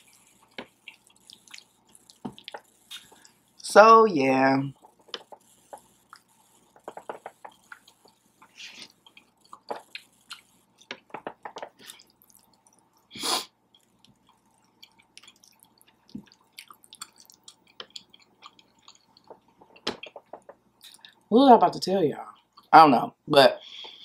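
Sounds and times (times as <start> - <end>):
person chewing wetly: 0.0 - 3.4, 4.8 - 11.1, 11.7 - 21.2, 22.3 - 22.7
small mouth clicks: 0.1 - 3.3, 13.7 - 21.2
lip smacks: 0.1 - 3.4, 13.8 - 21.3.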